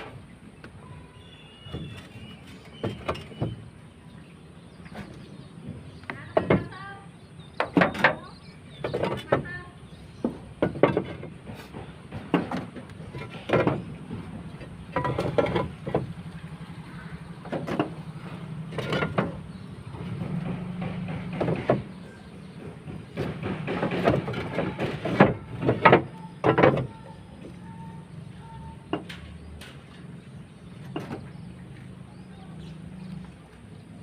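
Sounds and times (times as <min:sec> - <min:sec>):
metallic knocks and clanks: 0:07.6 - 0:09.6, 0:10.2 - 0:16.3, 0:17.4 - 0:27.9, 0:28.5 - 0:31.4.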